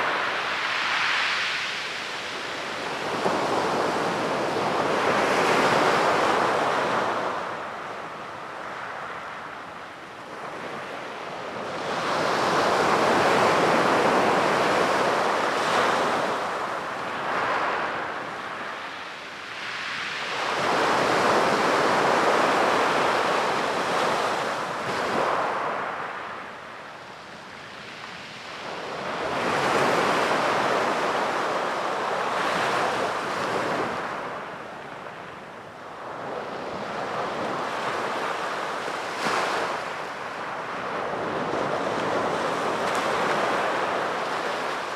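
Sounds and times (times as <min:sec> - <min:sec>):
sea waves breaking on beach: 0:35.8 - 0:44.9.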